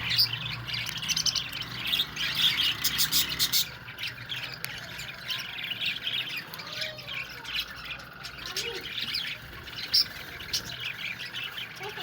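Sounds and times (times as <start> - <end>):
budgerigars chirping and warbling: 0.0 - 12.0
bird squawk: 1.2 - 3.8.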